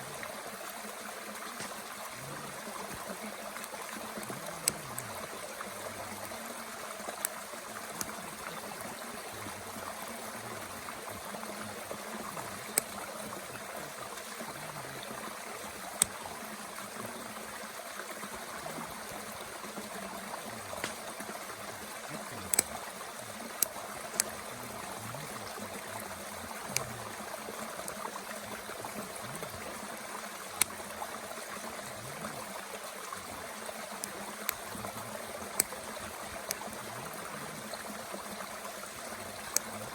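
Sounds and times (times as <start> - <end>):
mountain stream running: 0.0 - 39.9
wood fire crackling and popping: 1.4 - 8.8, 12.2 - 14.3, 18.3 - 29.6, 33.2 - 36.8, 37.7 - 39.8.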